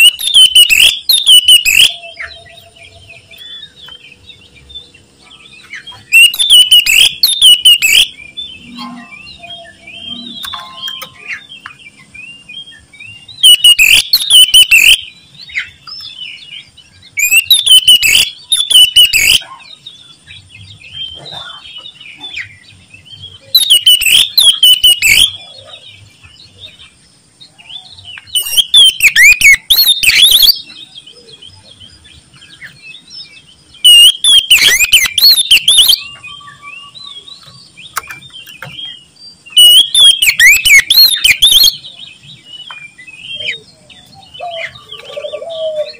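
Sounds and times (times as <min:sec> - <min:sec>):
bird singing whistled phrases: 0:00.0 - 0:03.8, 0:06.0 - 0:15.2, 0:17.2 - 0:19.5, 0:23.3 - 0:25.8, 0:27.6 - 0:31.4, 0:33.8 - 0:42.0
soft bird twittering: 0:00.0 - 0:45.9.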